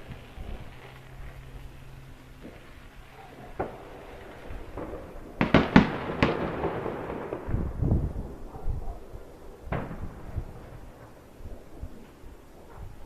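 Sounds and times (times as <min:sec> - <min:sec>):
rolling noise and small pops: 0:00.0 - 0:07.6
fireworks bangs: 0:00.0 - 0:13.0.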